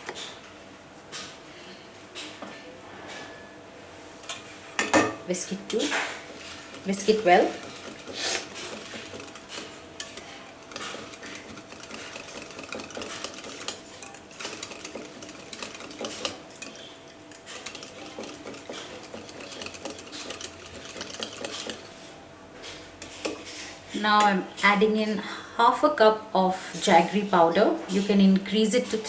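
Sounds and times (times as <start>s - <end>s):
whisk beating in a bowl: 5.8s - 22.0s.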